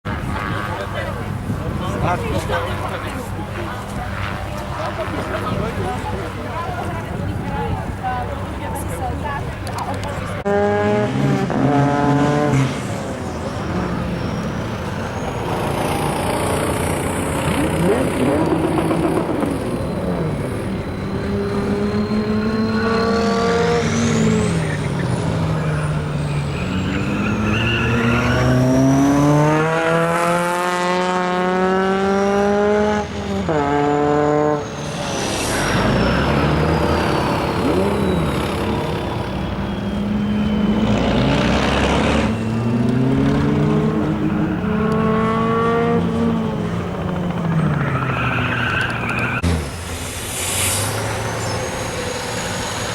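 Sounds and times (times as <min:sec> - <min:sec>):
truck engine revving: 0:09.7 - 0:52.9
high whine: 0:33.0 - 0:40.8, 0:48.6 - 0:52.9.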